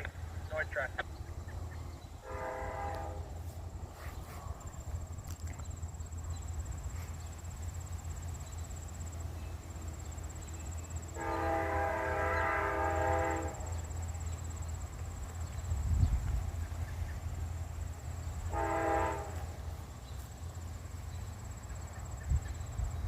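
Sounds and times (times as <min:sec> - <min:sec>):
train rumbling: 0:00.0 - 0:23.0
train horn blast: 0:02.2 - 0:03.6, 0:11.1 - 0:13.9, 0:18.2 - 0:20.0.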